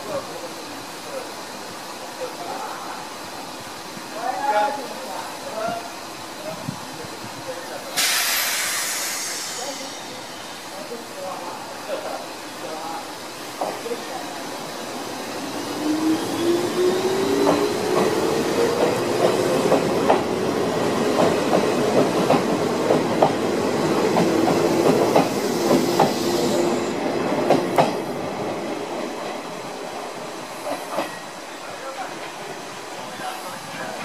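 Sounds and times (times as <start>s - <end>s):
train wheels clicking over rail joints: 17.1s - 20.4s, 21.1s - 26.2s, 27.4s - 28.1s.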